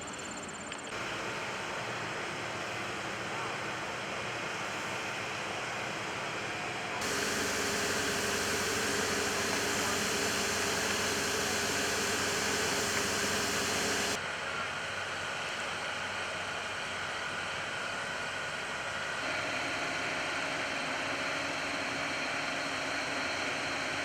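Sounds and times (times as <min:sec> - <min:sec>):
bright loud hiss: 0:07.0 - 0:14.2
hissing rush of air: 0:07.0 - 0:14.2
low machinery hum: 0:07.0 - 0:14.2.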